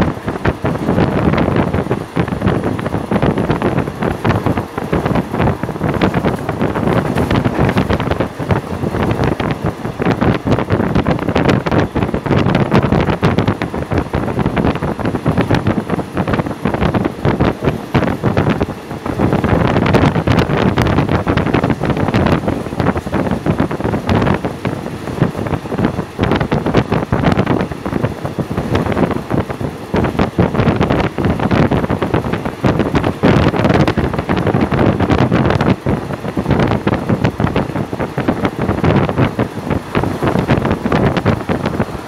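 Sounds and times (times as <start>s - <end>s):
wind buffeting microphone: 0.0s - 42.0s
train wheels clattering: 3.4s - 11.3s.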